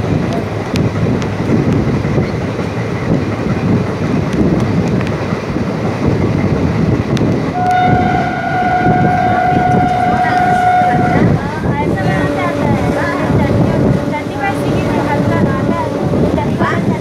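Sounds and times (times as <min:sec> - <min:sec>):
train wheels rumbling on rails: 0:00.0 - 0:17.0
rail-joint clicks: 0:00.1 - 0:17.0
train horn blast: 0:07.5 - 0:16.6.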